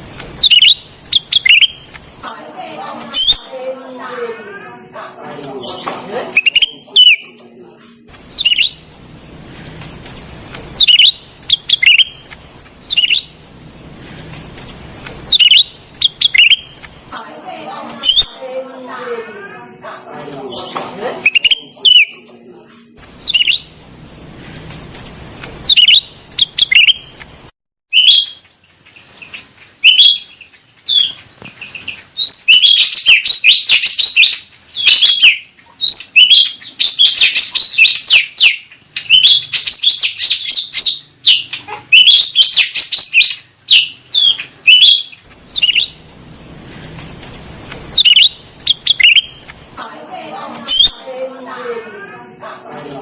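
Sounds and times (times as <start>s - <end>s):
bird chirping and chattering: 0.4s - 2.0s, 5.6s - 7.4s, 8.3s - 9.3s, 10.7s - 14.3s, 15.2s - 16.9s, 18.0s - 18.4s, 20.5s - 22.2s, 23.2s - 23.7s, 25.6s - 27.1s, 27.9s - 46.1s, 47.9s - 49.6s.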